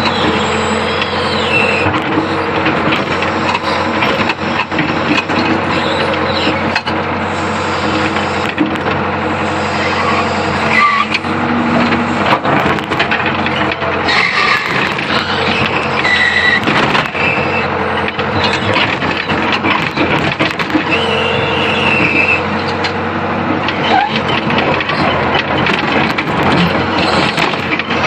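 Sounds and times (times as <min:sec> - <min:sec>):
high machine squeals: 0:00.0 - 0:02.5, 0:05.6 - 0:06.7, 0:09.5 - 0:11.2, 0:13.5 - 0:20.1, 0:20.8 - 0:22.8, 0:23.8 - 0:25.4, 0:26.6 - 0:27.5
excavator diesel engine running: 0:00.0 - 0:28.0.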